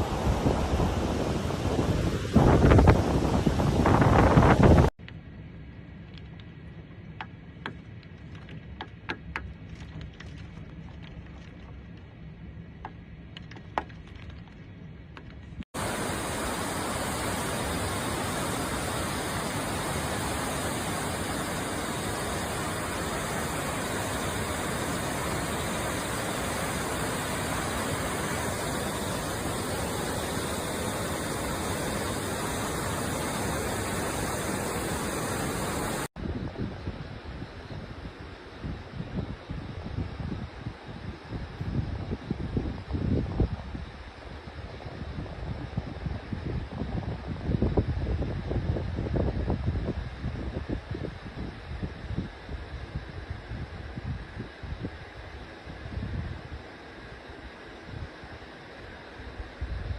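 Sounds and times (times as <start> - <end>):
loud steady rushing hiss: 0.0 - 4.9, 15.8 - 59.9
muffled storm rushing: 0.0 - 4.9, 15.8 - 44.1.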